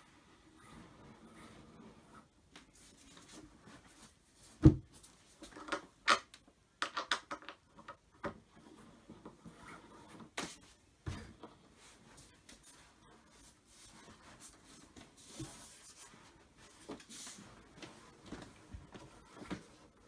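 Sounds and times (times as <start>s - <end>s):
wooden panels knocking and clicking: 5.6s - 8.4s.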